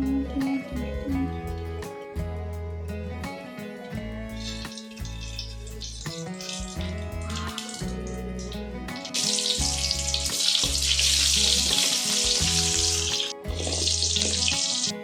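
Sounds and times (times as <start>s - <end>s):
background music: 0.0s - 15.0s
frying sizzle in hot oil: 4.4s - 15.0s.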